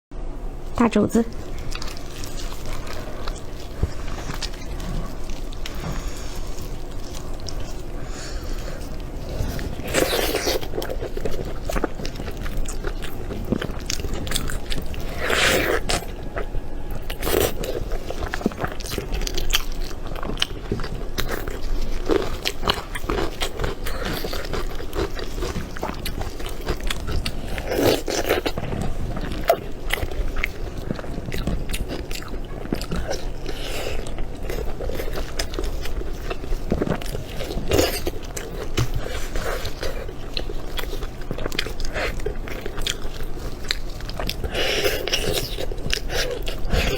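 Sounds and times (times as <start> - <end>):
person chewing food: 0.6 - 46.9.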